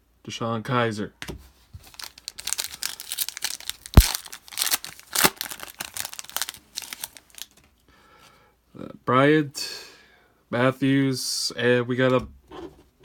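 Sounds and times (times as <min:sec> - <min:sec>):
foil wrapper tearing and crinkling: 0:01.8 - 0:07.7.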